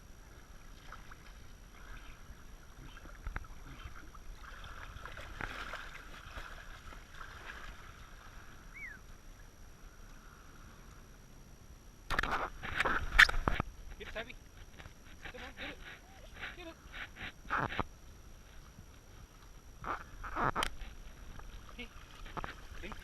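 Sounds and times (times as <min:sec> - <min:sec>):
paddle splashing water: 0:00.3 - 0:08.7, 0:21.0 - 0:23.0.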